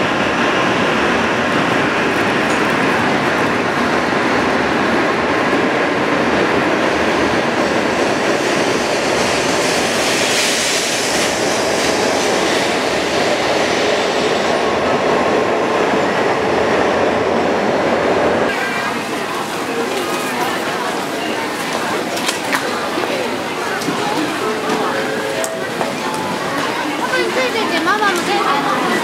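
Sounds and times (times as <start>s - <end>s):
bullet train rushing past: 0.0s - 29.0s.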